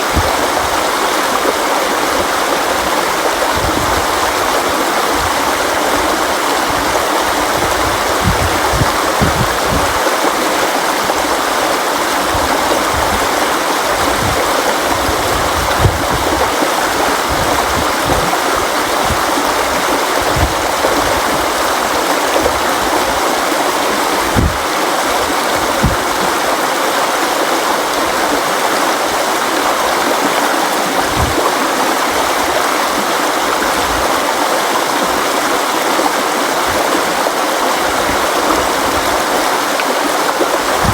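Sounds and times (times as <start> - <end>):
river flowing over rocks: 0.0 - 40.9
low thuds from current: 7.6 - 10.0, 15.2 - 16.5, 24.2 - 24.7, 25.6 - 26.3, 31.1 - 31.4.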